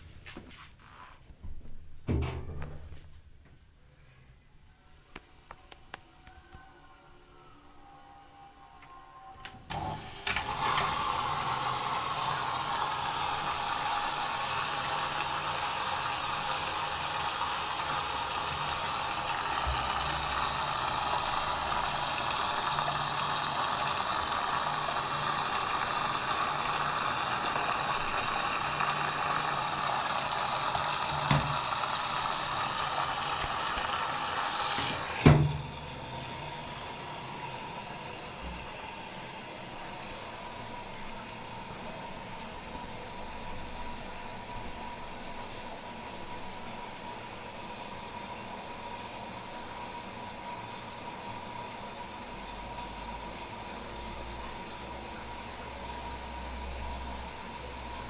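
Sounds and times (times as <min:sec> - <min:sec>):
washing machine hum: 0:00.0 - 0:04.1, 0:09.4 - 0:58.0
water hissing into machine: 0:09.8 - 0:40.5
valve shutting clunk: 0:30.7 - 0:32.2, 0:33.4 - 0:36.2.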